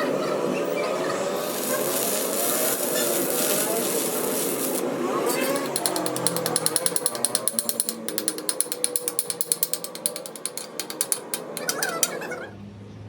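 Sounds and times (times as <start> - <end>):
rapid mechanical clicking: 2.8 - 12.1.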